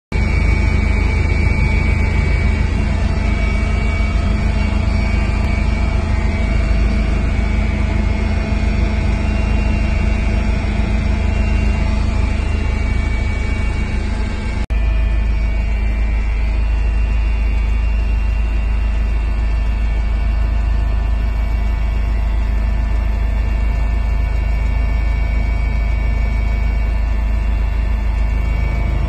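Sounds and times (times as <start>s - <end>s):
helicopter engine and rotor drone: 0.1s - 29.0s.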